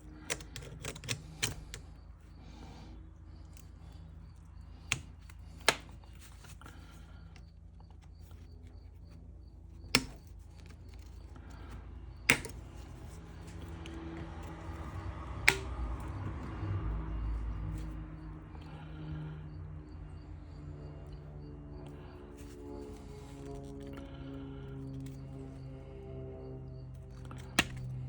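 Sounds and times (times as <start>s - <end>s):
low hum: 0.0s - 28.0s
metal tools clicking and tapping: 0.1s - 2.0s.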